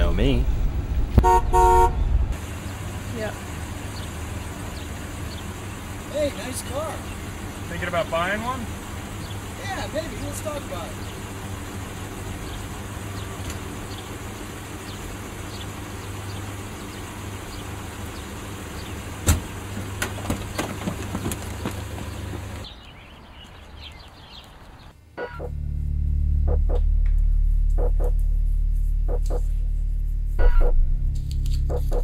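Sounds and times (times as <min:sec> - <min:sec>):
car engine idling: 0:00.0 - 0:22.7.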